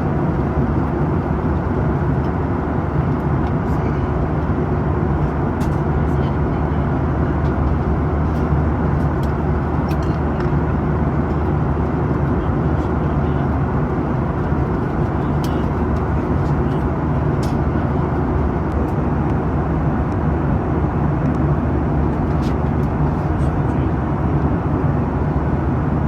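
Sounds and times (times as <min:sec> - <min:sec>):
airflow rushing over airplane fuselage: 0:00.0 - 0:26.0
jet engines droning: 0:00.0 - 0:26.0
faint clicks in cabin: 0:15.0 - 0:17.6.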